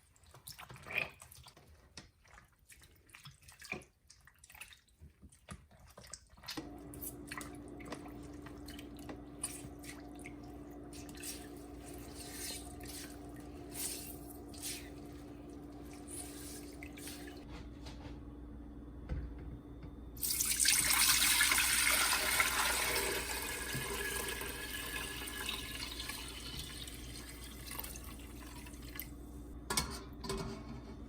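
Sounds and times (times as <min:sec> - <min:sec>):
water dripping and splashing: 0:00.0 - 0:06.6
steady electrical hum: 0:06.7 - 0:31.0.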